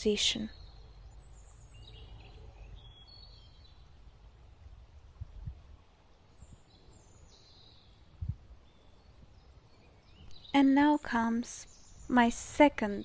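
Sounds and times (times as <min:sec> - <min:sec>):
birds chirping: 0:00.0 - 0:04.4, 0:06.1 - 0:13.0.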